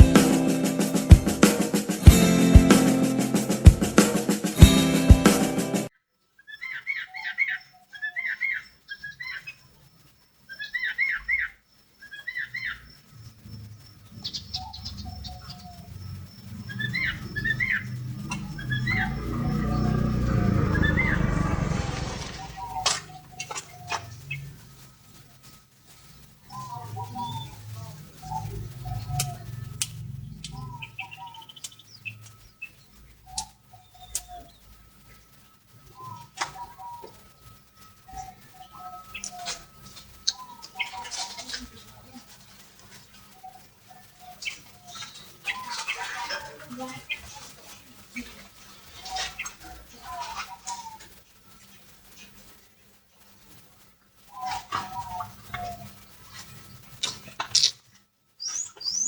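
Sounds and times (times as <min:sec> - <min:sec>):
higher bird chirps: 0:10.4 - 0:24.6, 0:26.2 - 0:41.7, 0:54.3 - 0:56.8, 0:58.4 - 0:59.0
low rumble: 0:16.0 - 0:22.8
bird singing whistled song: 0:16.6 - 0:21.4, 0:30.4 - 0:34.7, 0:35.9 - 0:37.4, 0:58.4 - 0:59.0.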